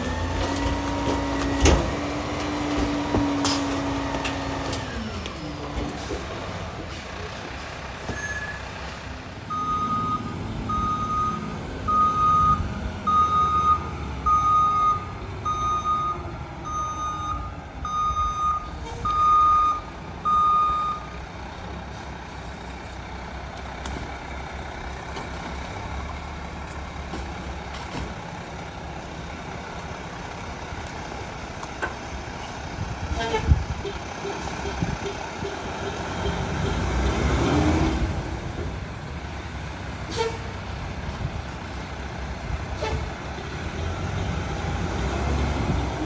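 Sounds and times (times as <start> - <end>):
diesel engine running: 0.0 - 18.1, 18.7 - 46.0
truck backup alarm beeping: 7.8 - 21.2.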